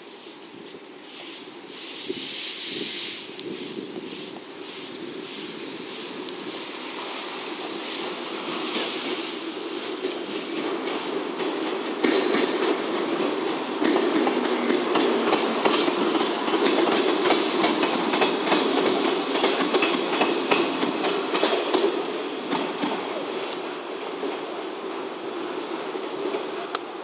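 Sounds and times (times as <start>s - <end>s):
train wheels clattering over rail joints: 6.4s - 23.2s.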